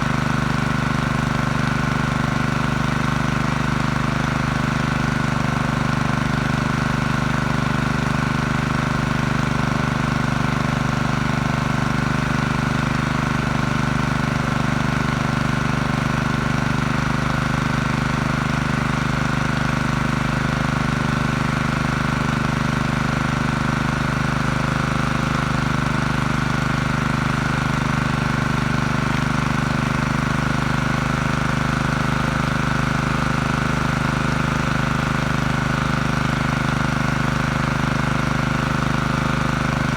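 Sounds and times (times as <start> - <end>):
generator engine running: 0.0 - 39.9.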